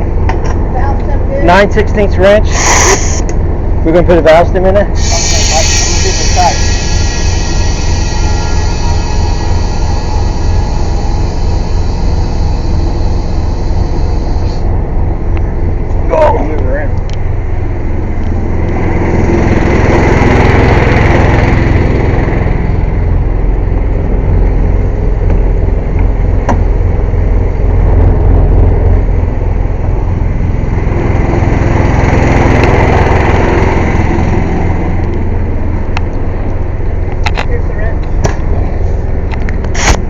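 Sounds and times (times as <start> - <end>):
air compressor running: 2.3 - 3.6, 4.8 - 16.3, 38.1 - 40.0
sharp click: 39.3 - 40.0.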